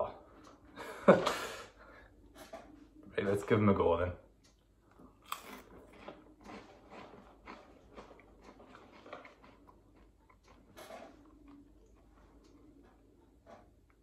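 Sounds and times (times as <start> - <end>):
crunchy snack being chewed: 4.9 - 13.0.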